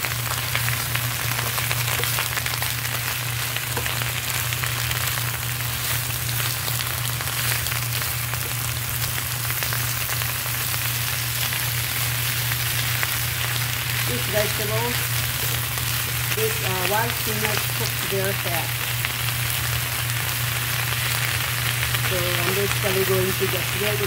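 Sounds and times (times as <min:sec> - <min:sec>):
greens sizzling in hot oil: 0:00.0 - 0:24.0
spatula stirring in pan: 0:00.7 - 0:10.2, 0:14.9 - 0:16.4.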